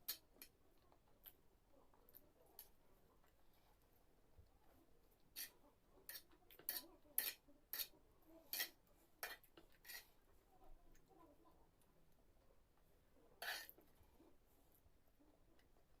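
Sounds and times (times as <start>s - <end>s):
utensils clinking against a dish: 6.1s - 7.9s.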